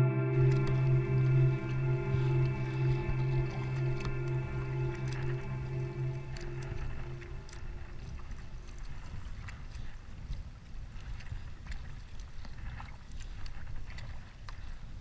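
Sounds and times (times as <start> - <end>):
low rumble: 0.0 - 9.8
paddle splashing and dripping: 0.3 - 15.0.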